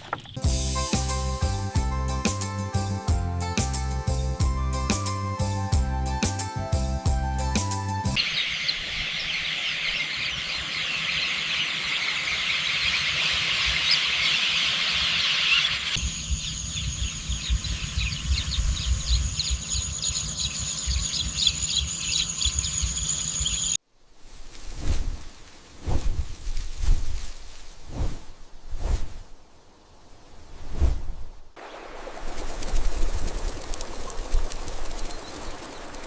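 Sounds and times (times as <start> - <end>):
birds chirping: 0.0 - 0.5, 8.2 - 23.8, 31.6 - 36.0.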